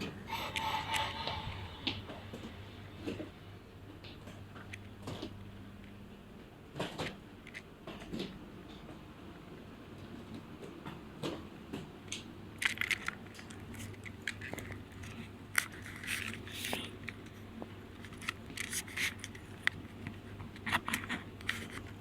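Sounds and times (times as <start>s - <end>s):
train interior hum: 0.0s - 3.6s
scattered clicks and crackles: 12.1s - 22.0s.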